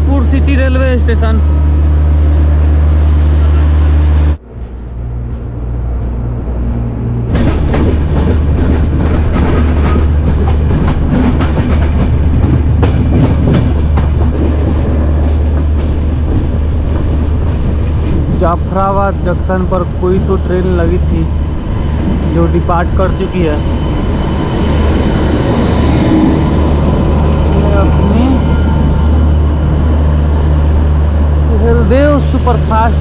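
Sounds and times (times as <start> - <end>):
wind and train running noise: 0.0 - 33.0
train wheels clacking over rail joints: 7.3 - 18.4.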